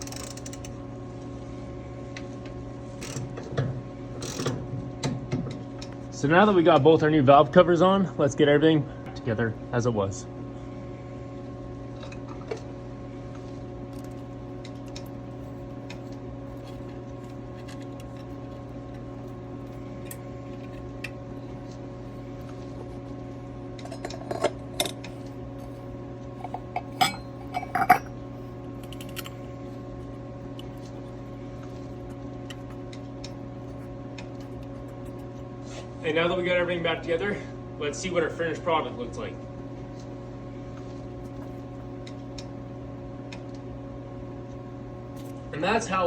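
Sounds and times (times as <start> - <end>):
steady hum: 0.0 - 46.0
metal tools clinking: 26.4 - 28.1.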